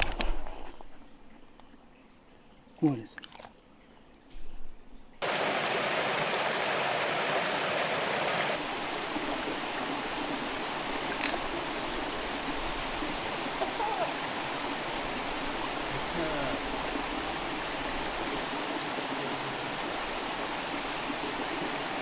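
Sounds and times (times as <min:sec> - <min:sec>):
rushing water: 0:05.2 - 0:22.0.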